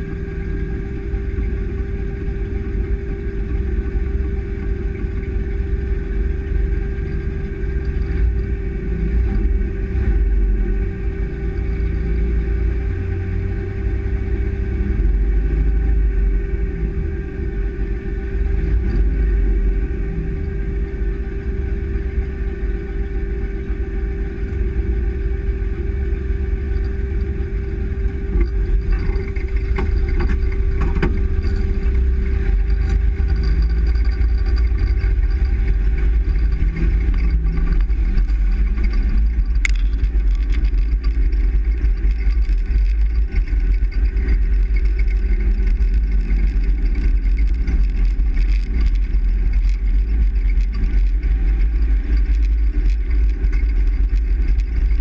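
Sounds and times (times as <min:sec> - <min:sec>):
steady hum: 0:00.0 - 0:55.0
truck engine and road noise: 0:00.0 - 0:55.0.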